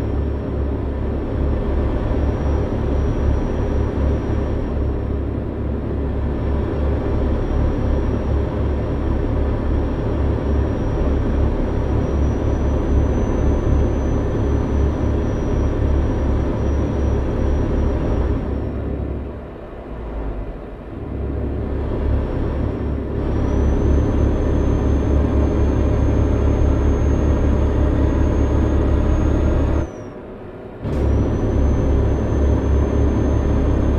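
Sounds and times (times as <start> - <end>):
truck engine and road rumble: 0.0 - 33.9
faint high whine: 2.0 - 5.1, 9.3 - 19.3, 22.6 - 33.9.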